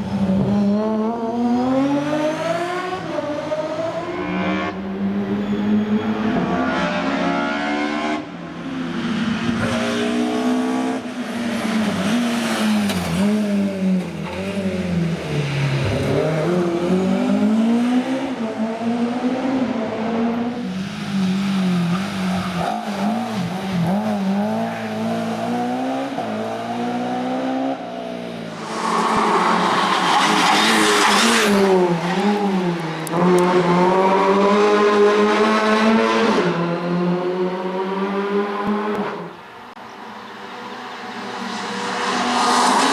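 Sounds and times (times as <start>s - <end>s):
rally car engine revving: 0.0s - 42.9s
car passing by rushing: 1.7s - 18.4s, 19.6s - 42.9s
tyre squeal: 5.2s - 6.6s, 28.5s - 33.1s.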